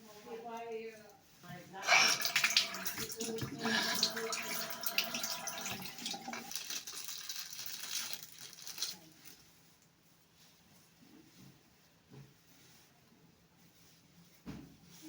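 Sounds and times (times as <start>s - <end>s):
tap water running into sink: 1.8s - 8.2s.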